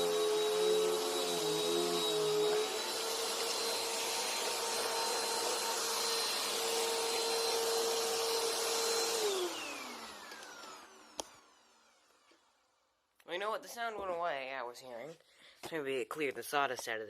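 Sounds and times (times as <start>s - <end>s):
vacuum cleaner motor whine: 0.0s - 12.5s.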